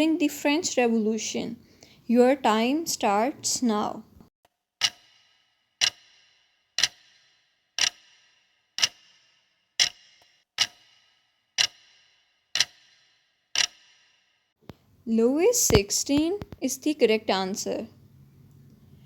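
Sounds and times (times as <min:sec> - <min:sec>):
clock ticking with brief ring: 0:04.8 - 0:14.0.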